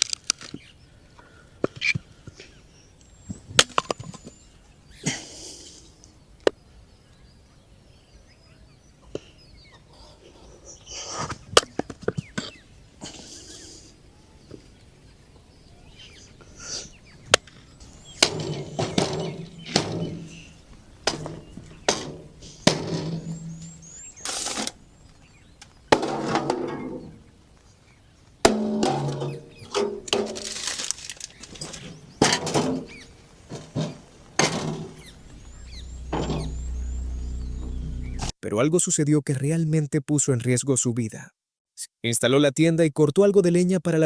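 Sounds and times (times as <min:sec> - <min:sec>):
hatchet chopping firewood: 0:18.2 - 0:20.4, 0:21.0 - 0:24.8, 0:25.9 - 0:27.0, 0:28.4 - 0:30.8.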